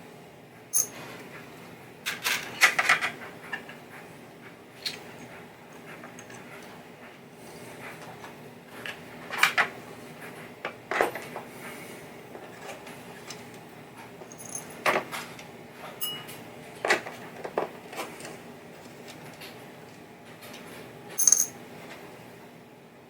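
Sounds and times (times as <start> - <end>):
small parts clinking and knocking: 14.3 - 14.7, 21.2 - 21.6.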